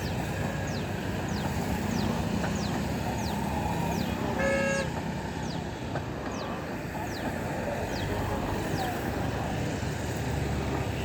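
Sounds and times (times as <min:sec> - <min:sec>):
train coaches rumbling past: 0:00.0 - 0:11.0
train horn toot: 0:04.3 - 0:05.0.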